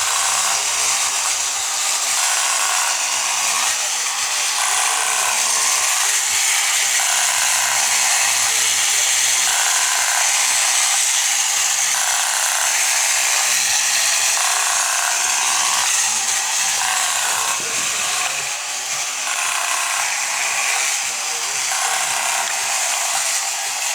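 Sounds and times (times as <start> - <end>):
small motor and gears buzzing: 0.0 - 23.9
toy sail mechanism rasping: 0.0 - 23.9.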